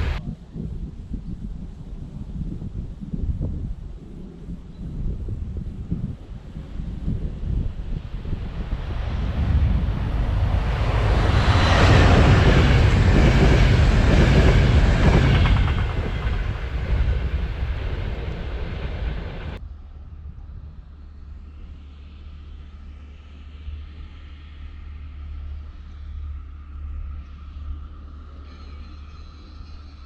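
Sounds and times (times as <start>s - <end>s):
train passing: 0.0s - 0.2s, 6.5s - 19.7s
quiet low rumble: 0.0s - 29.9s
wind: 0.0s - 30.0s.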